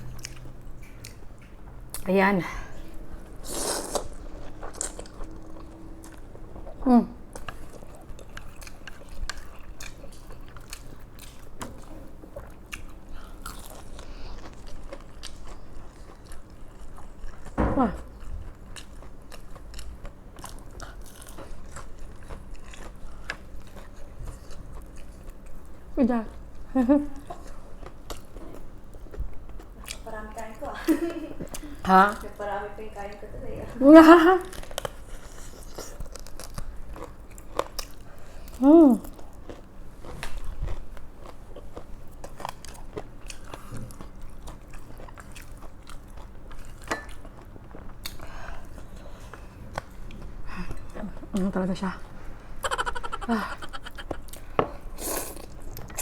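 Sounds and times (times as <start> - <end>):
crunching fried chicken: 3.4 - 6.3, 34.5 - 48.4.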